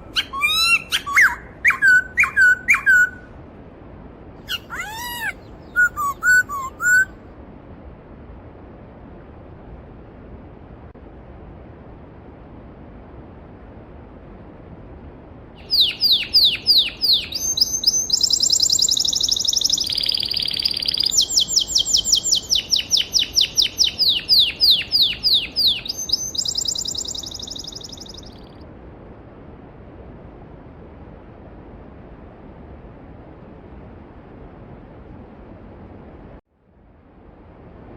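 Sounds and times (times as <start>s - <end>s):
songbird singing trills: 0.0s - 3.2s, 4.5s - 7.1s, 15.6s - 28.6s.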